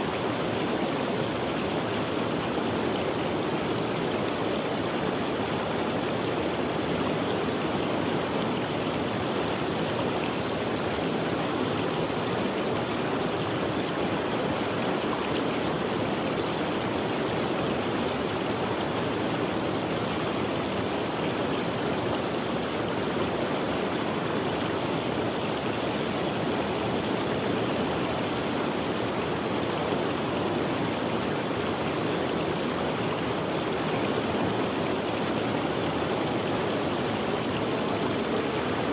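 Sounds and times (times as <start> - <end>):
stream of running water: 0.0 - 38.9.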